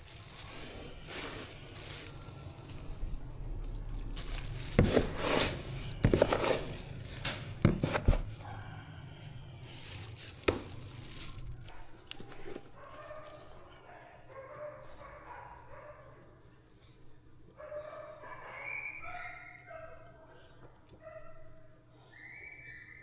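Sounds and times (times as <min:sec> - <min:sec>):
crinkling and rustling: 0:00.0 - 0:17.7.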